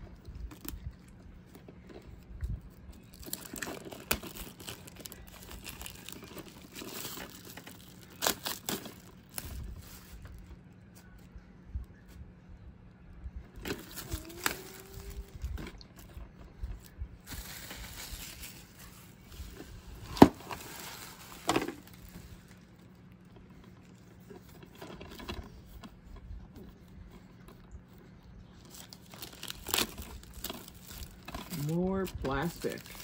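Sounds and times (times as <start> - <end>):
plastic wrap crinkling: 0.2 - 11.2, 13.6 - 33.0.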